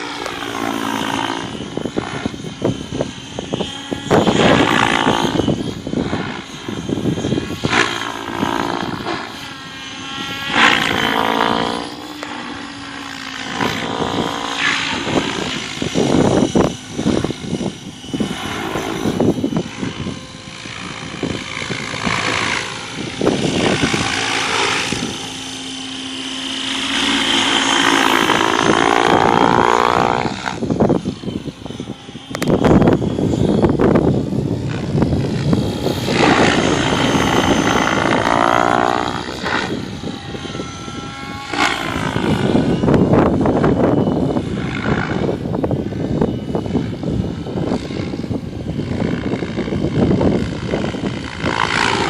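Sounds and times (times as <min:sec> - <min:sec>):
model helicopter rotor whine: 0:00.0 - 0:52.0.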